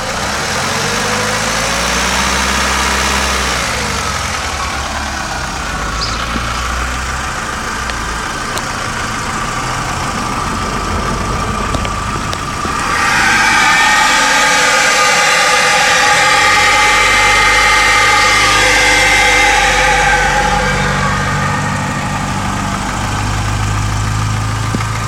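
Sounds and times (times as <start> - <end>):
car engine running: 0.0 - 25.0
rising tone: 12.4 - 25.0.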